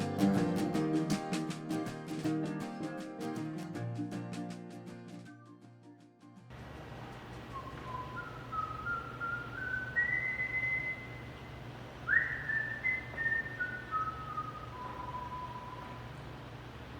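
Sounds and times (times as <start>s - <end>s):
steady low hum: 6.5s - 16.9s
person whistling a tune: 7.5s - 11.2s, 12.1s - 16.0s.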